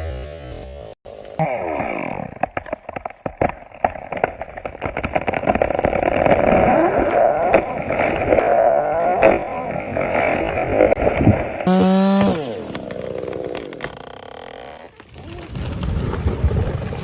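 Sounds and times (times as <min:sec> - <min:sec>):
sharp cracks: 0:01.2 - 0:08.6
chainsaw engine running: 0:11.7 - 0:14.9.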